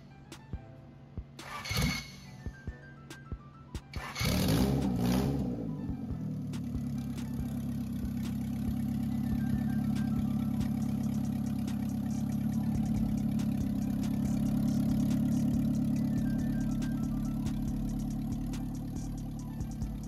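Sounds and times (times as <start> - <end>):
car engine idling: 4.2 - 20.0.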